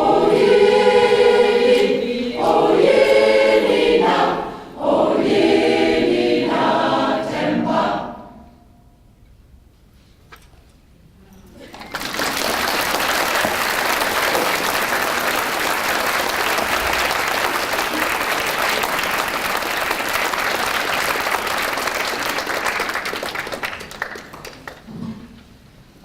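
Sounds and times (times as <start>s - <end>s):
audience applauding: 11.6s - 24.9s.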